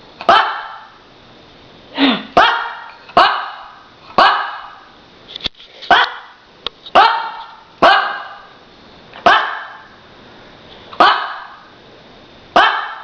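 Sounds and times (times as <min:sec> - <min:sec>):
puppy barking: 0:00.2 - 0:01.0, 0:02.4 - 0:04.9, 0:05.9 - 0:08.5, 0:09.2 - 0:09.9, 0:11.0 - 0:11.7, 0:12.6 - 0:13.0.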